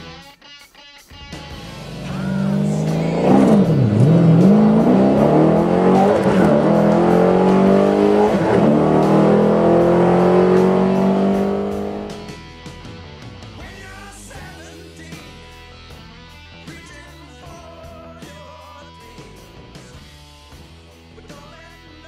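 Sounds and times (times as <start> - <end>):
car engine accelerating hard: 1.6 - 12.4.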